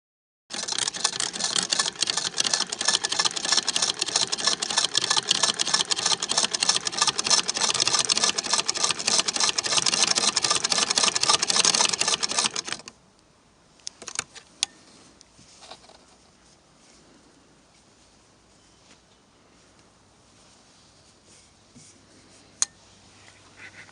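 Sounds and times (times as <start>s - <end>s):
sewing machine clattering: 0.5s - 12.9s.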